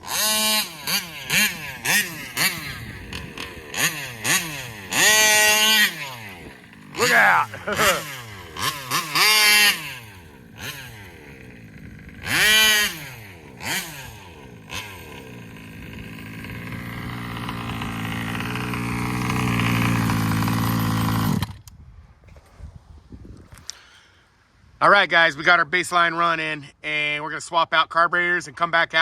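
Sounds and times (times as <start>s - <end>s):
two-stroke engine revving: 0.0s - 21.7s.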